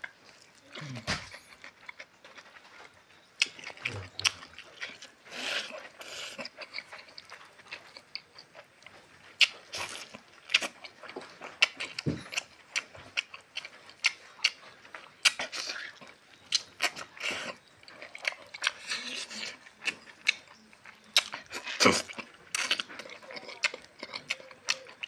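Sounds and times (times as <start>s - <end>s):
wet chewing and mouth clicks: 0.0s - 25.0s.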